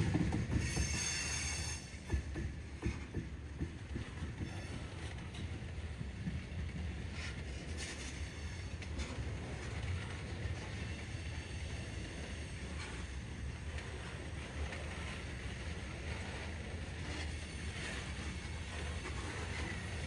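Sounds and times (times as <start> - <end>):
freight train rumbling past: 0.0 - 20.0.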